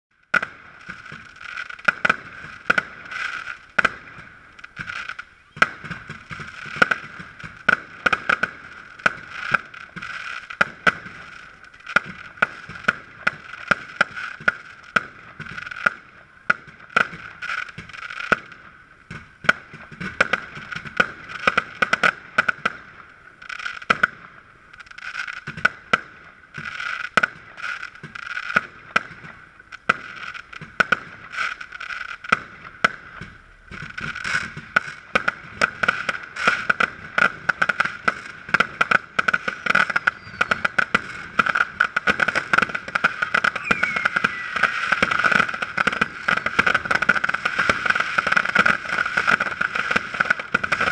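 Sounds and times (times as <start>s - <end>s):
fireworks bangs: 0.2s - 50.9s
hiss of rising sparks: 43.0s - 50.0s.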